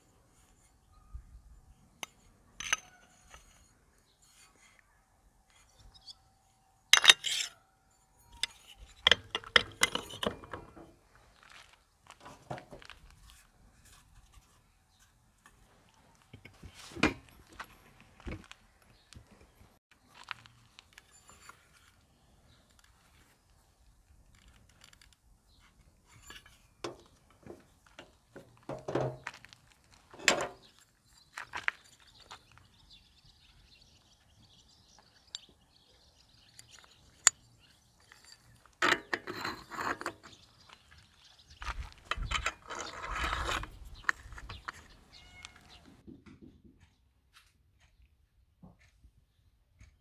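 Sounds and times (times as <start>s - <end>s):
parts clattering and rustling: 1.9s - 4.8s, 6.9s - 7.6s, 8.2s - 32.8s, 36.4s - 46.6s
metal parts clicking and clinking: 2.0s - 3.7s, 7.0s - 7.6s, 8.2s - 10.9s, 36.4s - 40.8s, 41.6s - 45.9s.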